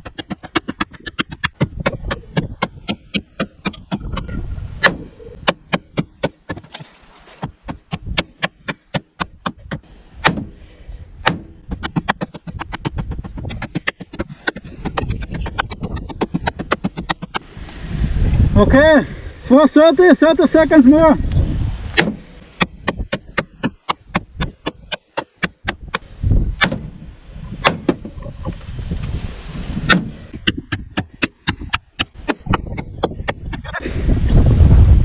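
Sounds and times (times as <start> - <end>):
knife chopping into sheet metal: 0.0 - 10.6, 11.2 - 17.4, 21.9 - 26.0.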